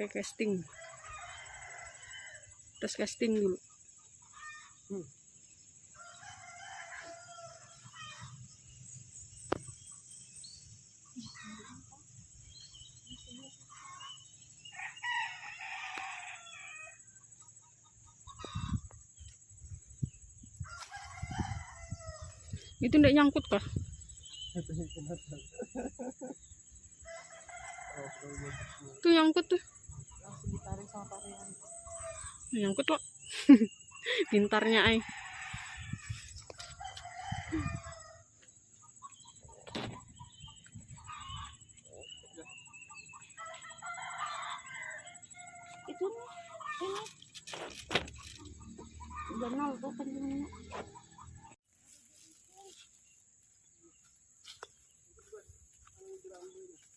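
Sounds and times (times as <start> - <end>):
rooster crowing: 0.6 - 2.6, 5.9 - 8.4, 14.8 - 17.1, 20.6 - 22.6, 27.0 - 29.0, 34.1 - 38.3, 42.9 - 47.1
chickens clucking: 17.3 - 19.0, 38.6 - 43.3, 45.7 - 51.6.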